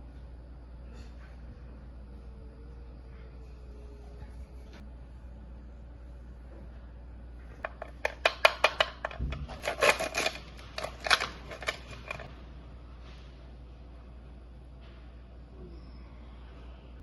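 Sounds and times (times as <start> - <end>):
utensils knocking on a dish: 7.6 - 10.4.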